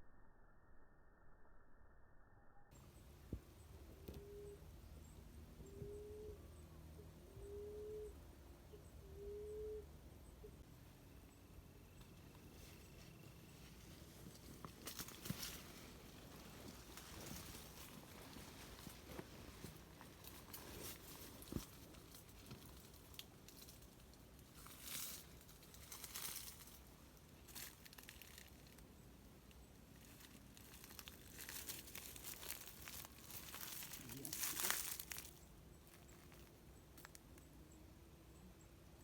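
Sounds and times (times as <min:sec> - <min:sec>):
rustling and crinkling: 0:12.1 - 0:37.4.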